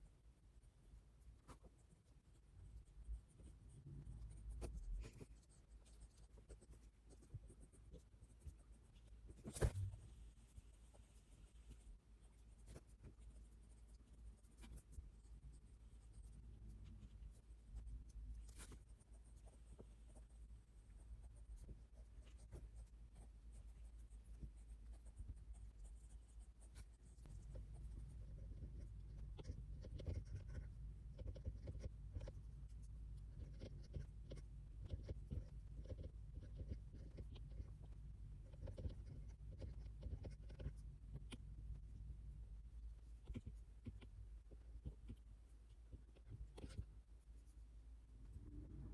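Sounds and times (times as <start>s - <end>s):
low room hum: 0.0s - 48.9s
pen scratching on paper: 4.2s - 9.8s, 10.9s - 14.9s, 21.3s - 37.8s, 38.4s - 40.8s.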